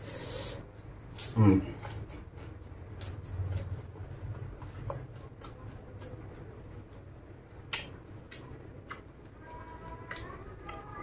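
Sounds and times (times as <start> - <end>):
chewing crunchy greens: 0.7 - 11.0
wet mouth clicks: 7.6 - 9.1.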